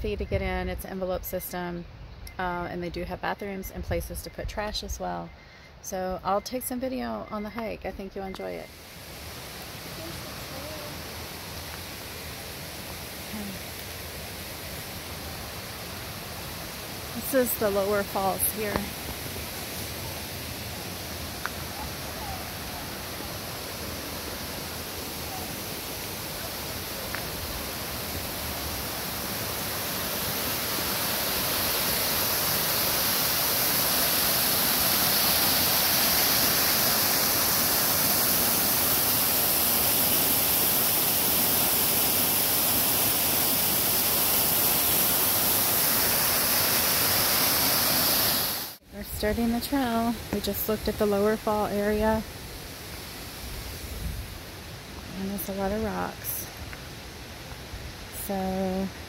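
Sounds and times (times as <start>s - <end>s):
waterfall roaring: 8.7s - 48.8s.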